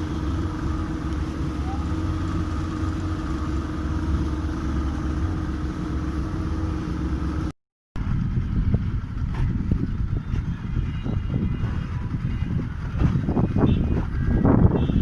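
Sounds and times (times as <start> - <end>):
boat engine rumbling: 0.0 - 15.0
engine knocks: 8.0 - 15.0.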